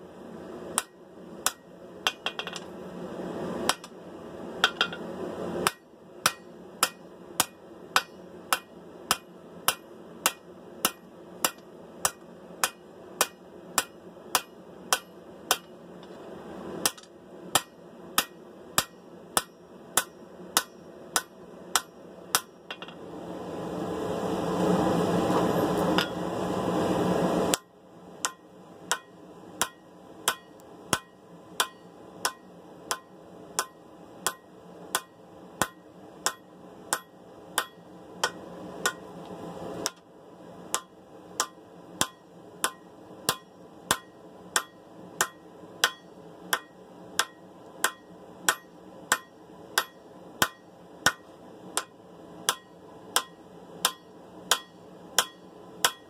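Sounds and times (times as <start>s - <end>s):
hammer striking hot steel: 0.7s - 2.7s, 3.6s - 4.0s, 4.6s - 15.8s, 16.8s - 23.0s, 26.0s - 26.3s, 27.5s - 39.1s, 39.8s - 40.1s, 40.7s - 56.0s.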